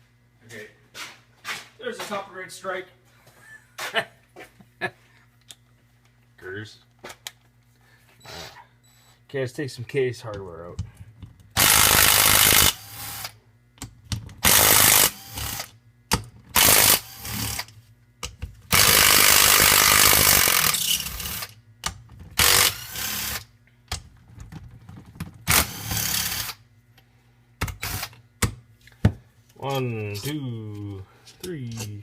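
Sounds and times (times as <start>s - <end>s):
power driver running: 10.3s - 26.6s, 27.6s - 28.2s.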